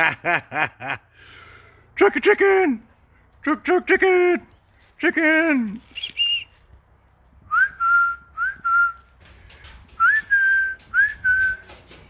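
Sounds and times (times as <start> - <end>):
person whistling sliding notes: 7.5 - 9.0.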